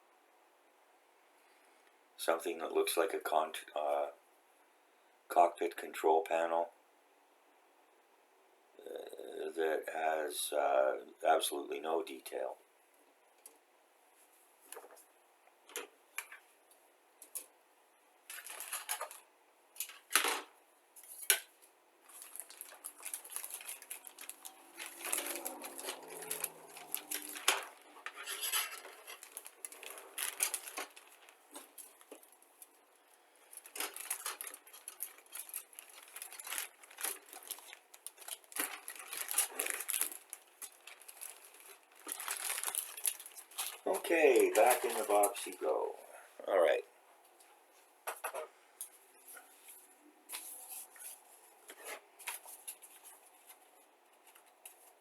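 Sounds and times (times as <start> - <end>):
plastic rustling: 18.2 - 45.7, 49.2 - 55.0.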